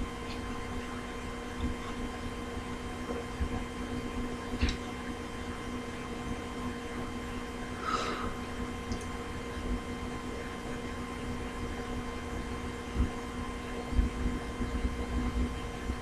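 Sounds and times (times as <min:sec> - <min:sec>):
faint electrical hum: 0:00.0 - 0:16.0
small clicks and taps: 0:04.6 - 0:04.8.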